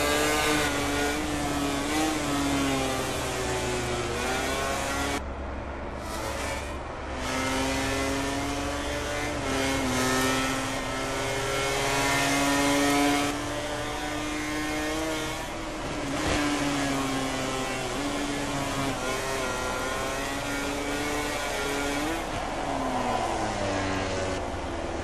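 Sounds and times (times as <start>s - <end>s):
racing motorcycle engines high revs: 0.0s - 5.2s, 6.0s - 25.0s.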